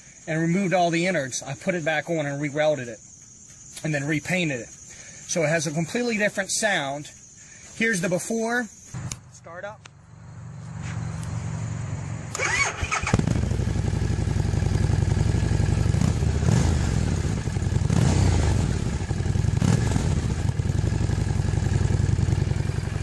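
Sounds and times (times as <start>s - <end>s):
motorcycle engine starting and revving: 10.1s - 23.0s.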